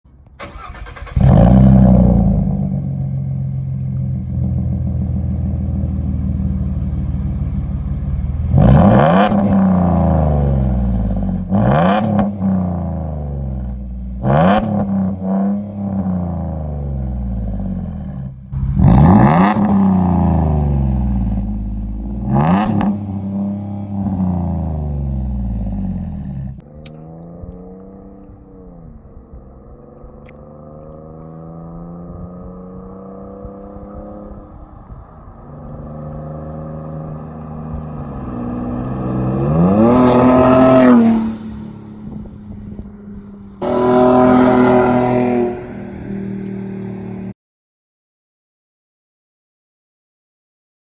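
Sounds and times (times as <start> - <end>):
truck engine starting and idling: 0.1 - 11.6, 16.6 - 30.2
engine revving: 0.4 - 47.3.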